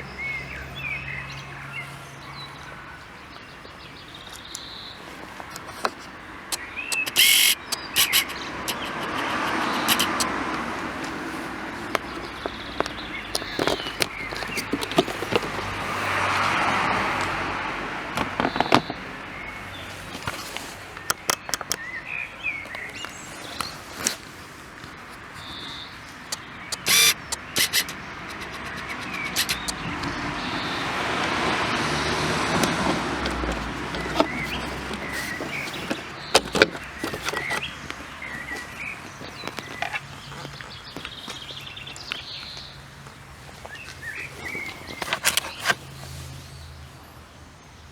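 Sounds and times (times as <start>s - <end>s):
birds chirping: 0.0s - 17.3s, 18.3s - 47.0s
road vehicles passing by: 0.0s - 47.9s
sharp clicks: 5.5s - 11.2s, 21.0s - 21.8s, 26.2s - 30.7s.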